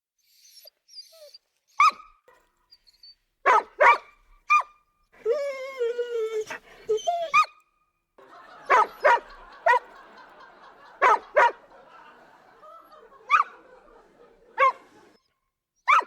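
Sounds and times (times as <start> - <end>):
dog barking: 1.8 - 2.1, 3.5 - 4.8, 8.5 - 10.0, 11.0 - 11.8, 13.2 - 13.8, 14.5 - 15.2.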